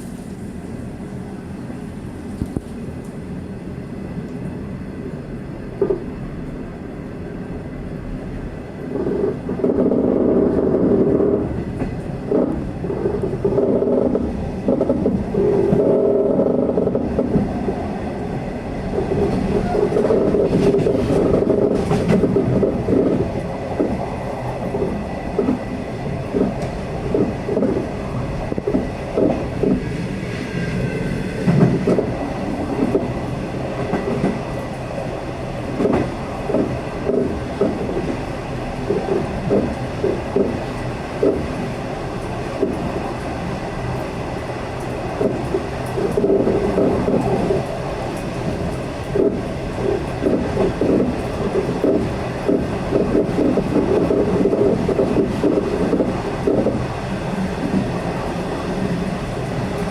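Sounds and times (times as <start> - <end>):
train rumbling: 0.0 - 59.9
wheels clattering on track: 8.9 - 17.9, 18.7 - 59.9.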